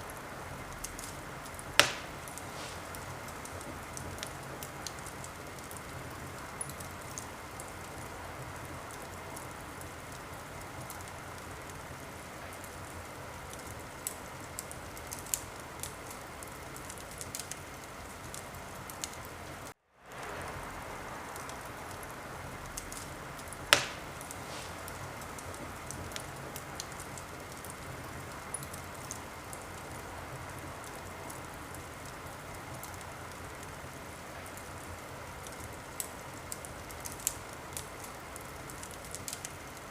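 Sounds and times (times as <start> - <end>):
fire crackling: 0.0 - 39.9
loud pop of fire: 1.7 - 5.0, 22.7 - 26.6.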